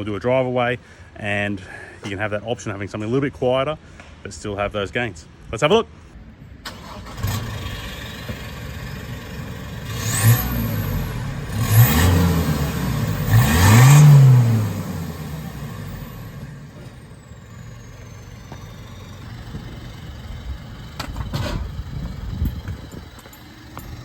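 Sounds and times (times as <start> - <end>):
diesel engine revving: 6.6 - 24.0.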